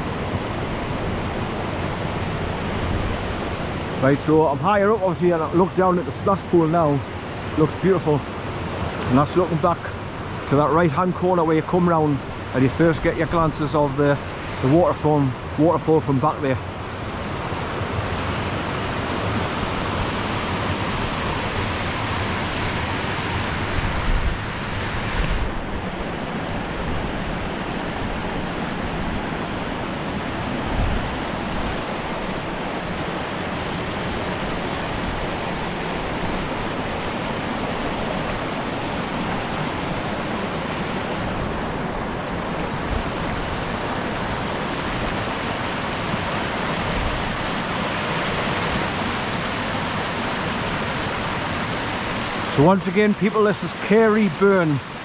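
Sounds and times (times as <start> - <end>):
waterfall rushing: 0.0 - 55.0
wind thumps on microphone: 23.4 - 26.0.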